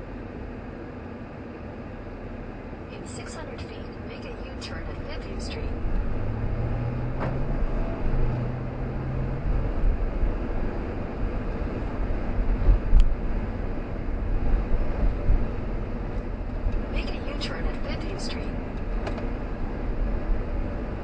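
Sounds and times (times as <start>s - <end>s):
car engine and road noise: 0.0s - 21.0s
low droning tone: 4.4s - 18.9s.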